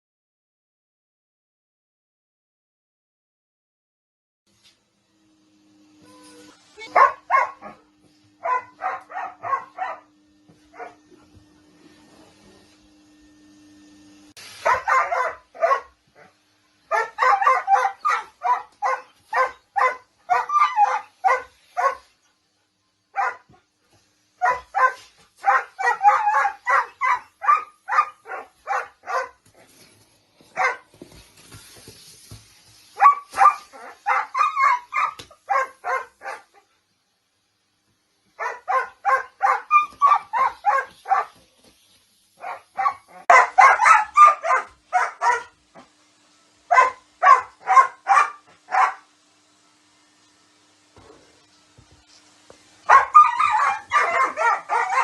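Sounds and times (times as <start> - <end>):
dog barking rapidly: 6.8 - 7.8, 8.4 - 10.1, 14.6 - 16.0, 16.9 - 22.0, 23.2 - 23.5, 24.4 - 29.4, 30.6 - 30.9, 33.0 - 36.5, 38.4 - 41.3, 42.4 - 45.5, 46.7 - 49.0, 52.9 - 55.0.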